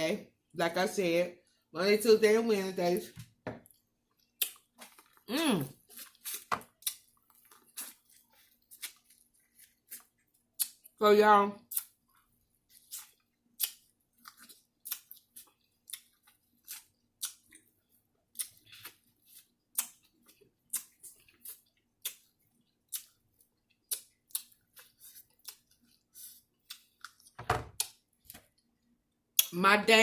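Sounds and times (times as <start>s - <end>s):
person chewing crunchy food: 3.6s - 11.0s, 11.7s - 29.5s.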